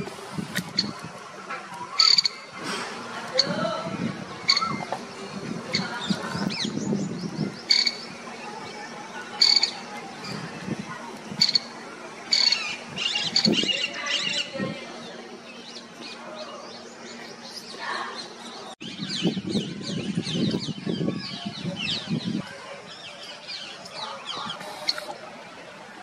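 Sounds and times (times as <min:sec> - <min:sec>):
wild birds chirping: 0:00.8 - 0:26.0.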